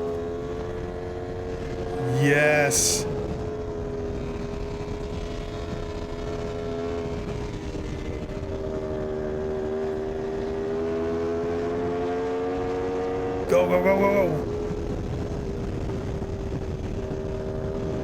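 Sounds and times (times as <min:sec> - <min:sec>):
motorcycle engine at high revs: 0:03.5 - 0:13.5.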